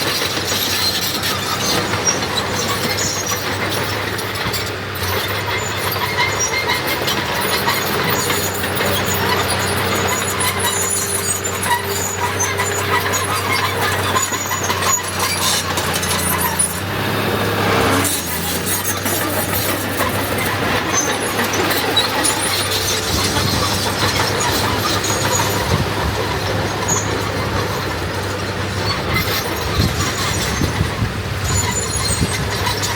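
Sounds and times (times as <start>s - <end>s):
diesel earthmoving machinery: 0.0s - 32.9s
metallic squeals and clanks: 0.0s - 32.9s.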